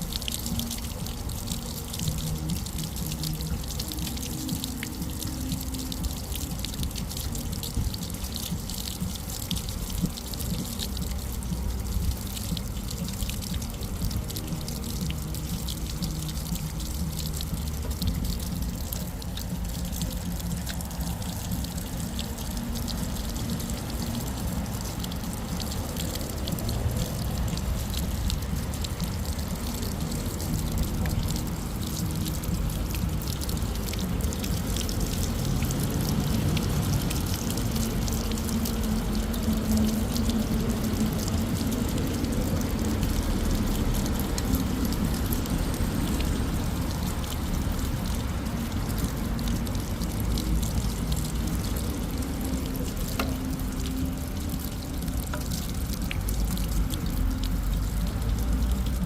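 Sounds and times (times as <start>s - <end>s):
water dripping: 0.0s - 59.0s
water gushing from a drainpipe: 0.0s - 59.0s.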